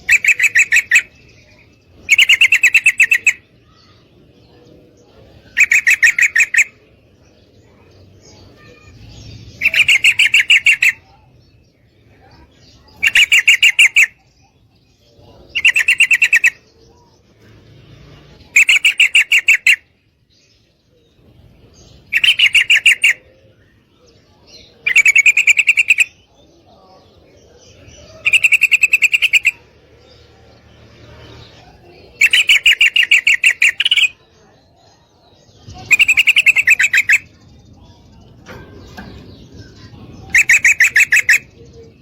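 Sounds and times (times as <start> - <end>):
bird chattering call: 0.0 - 4.0, 5.2 - 6.8, 8.2 - 11.3, 12.1 - 14.4, 15.2 - 16.7, 18.4 - 20.0, 22.0 - 23.5, 24.6 - 26.3, 27.6 - 34.6, 35.4 - 42.0.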